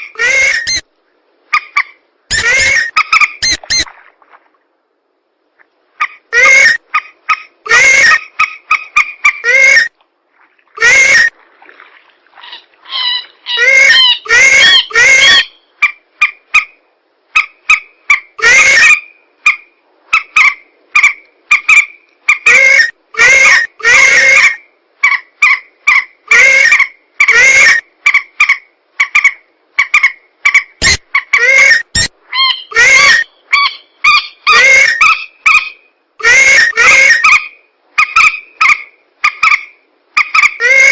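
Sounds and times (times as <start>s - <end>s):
harsh swamp bird calls: 12.4s - 16.4s, 29.9s - 40.9s.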